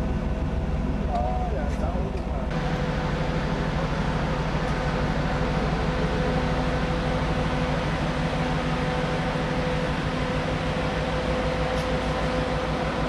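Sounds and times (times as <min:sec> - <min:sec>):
ship machinery humming: 0:00.0 - 0:13.0.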